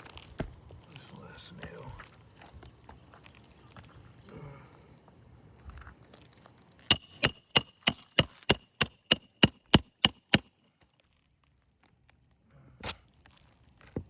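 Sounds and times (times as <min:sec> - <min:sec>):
hammer striking nail: 0:06.9 - 0:10.6.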